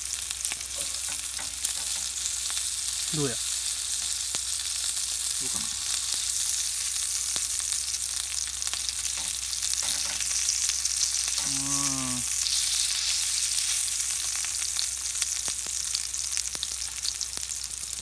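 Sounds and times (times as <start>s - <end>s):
food sizzling in a pan: 0.0s - 18.0s
person humming: 5.4s - 5.9s, 11.4s - 12.5s.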